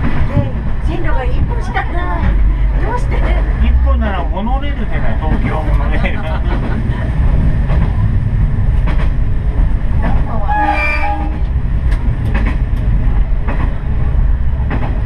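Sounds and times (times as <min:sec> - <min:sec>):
rail joint clicks: 0:00.0 - 0:03.6, 0:04.7 - 0:15.0
diesel railcar rumbling: 0:00.0 - 0:15.0
train horn blast: 0:10.4 - 0:11.4.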